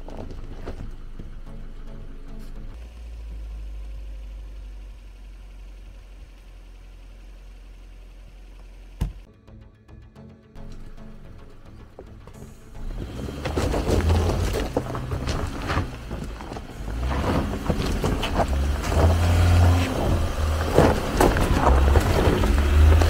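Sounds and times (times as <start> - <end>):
stones cracking under tyres: 0.0 - 1.4, 11.8 - 23.0
car engine working under load: 0.0 - 9.3, 10.6 - 23.0.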